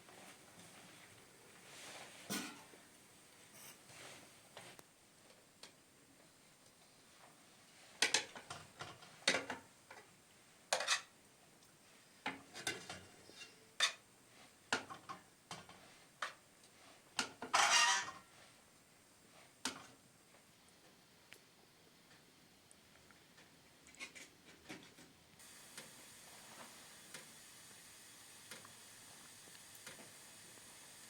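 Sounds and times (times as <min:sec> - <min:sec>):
dishes and utensils clinking: 0:17.2 - 0:18.2
dishes scraping clatter: 0:17.2 - 0:18.3.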